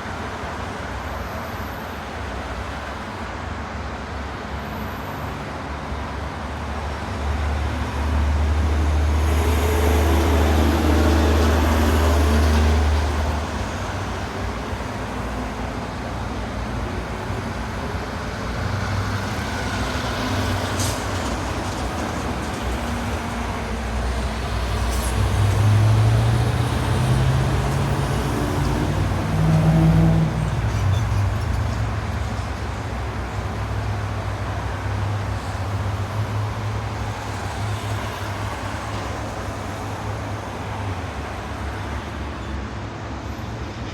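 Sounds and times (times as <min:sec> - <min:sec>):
hum of road vehicles: 0:00.0 - 0:43.9
heavy vehicle rumbling past: 0:18.7 - 0:42.3.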